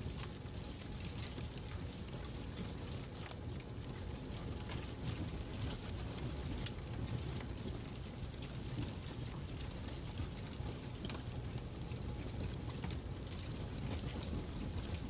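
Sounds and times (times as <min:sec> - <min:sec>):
fireplace crackling: 0:00.0 - 0:15.0.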